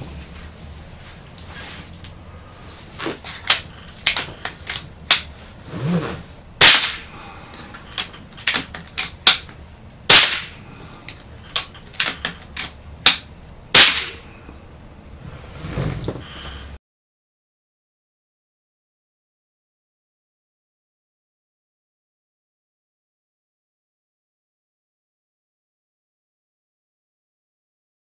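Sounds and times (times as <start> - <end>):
suppressed air rifle shots: 6.6 - 7.2, 10.1 - 10.6, 13.1 - 14.2.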